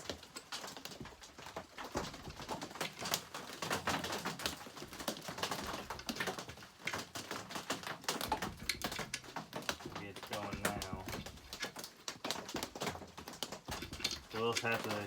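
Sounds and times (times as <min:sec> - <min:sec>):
hand tools clicking and clattering: 0:05.4 - 0:15.0.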